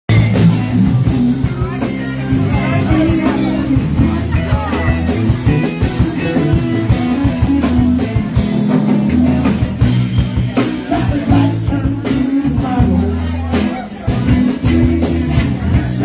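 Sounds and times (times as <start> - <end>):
bass guitar: 0.0 - 16.0
drum kit: 0.1 - 16.0
electric guitar: 0.1 - 16.0.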